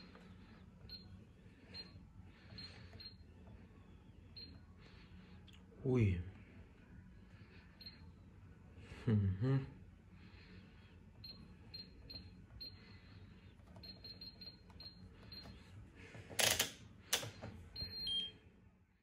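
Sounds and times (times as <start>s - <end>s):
washing machine control panel beeps: 0.8s - 3.5s, 4.2s - 4.6s, 11.2s - 12.9s, 13.7s - 15.6s, 17.1s - 18.5s.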